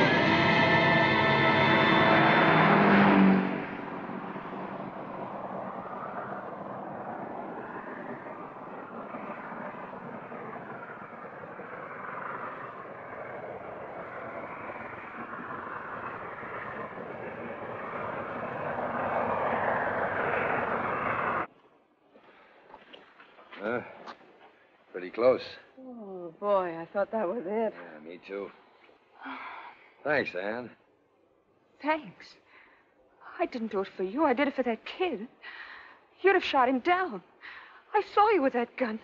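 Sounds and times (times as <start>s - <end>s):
motor vehicle running: 0.0s - 21.5s.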